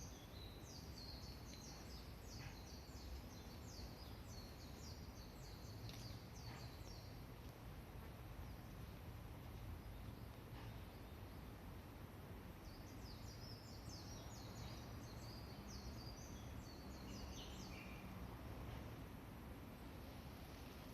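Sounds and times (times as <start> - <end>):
songbird twittering: 0.0 - 7.2, 12.6 - 18.2
low outdoor rumble: 0.0 - 20.9.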